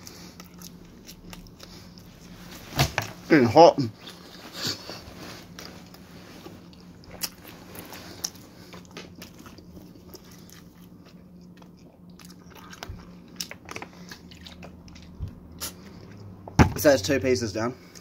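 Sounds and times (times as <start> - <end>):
person chewing food: 0.0 - 2.6, 4.0 - 16.5
low steady hum: 0.0 - 18.0.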